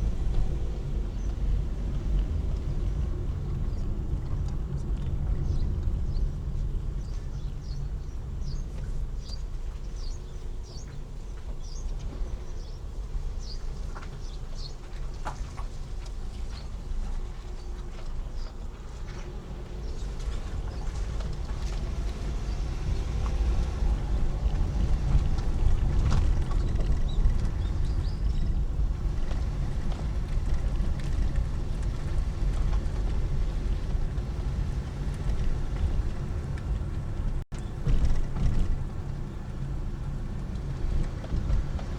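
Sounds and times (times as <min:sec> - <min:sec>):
car engine and road noise: 0:00.0 - 0:41.9.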